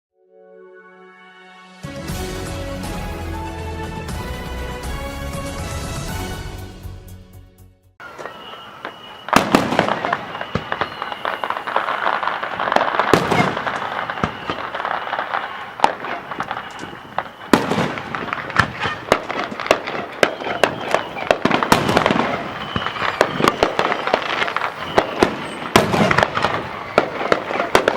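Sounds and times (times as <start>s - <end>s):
fireworks crackling and banging: 8.0s - 27.9s.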